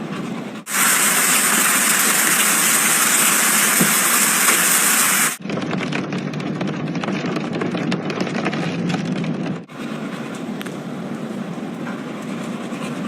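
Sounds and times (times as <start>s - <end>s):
hail and heavy rain pelting: 0.7s - 5.4s.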